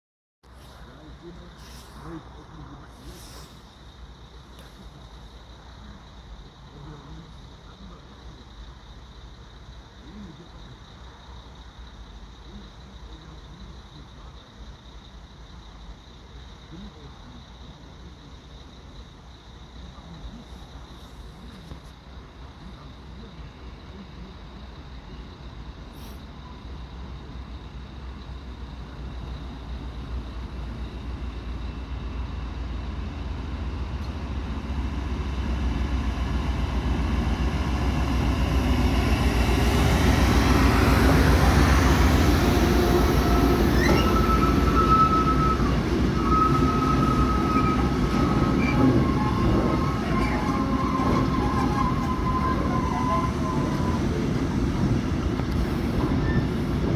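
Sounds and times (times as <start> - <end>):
freight train rumble: 0.4 - 56.9
high-pitched wheel squeal: 42.7 - 54.3, 55.7 - 56.9.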